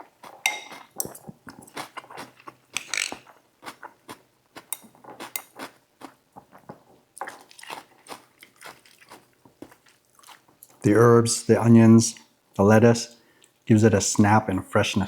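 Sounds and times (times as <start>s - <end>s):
chewing crunchy food: 0.0s - 10.8s
utensils clinking in a bowl: 0.4s - 1.8s, 2.8s - 3.2s.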